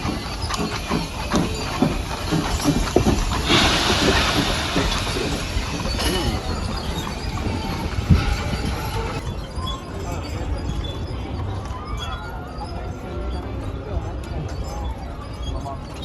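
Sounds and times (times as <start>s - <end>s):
indistinct voices: 0.0s - 16.0s
hissing noise burst: 2.2s - 9.0s.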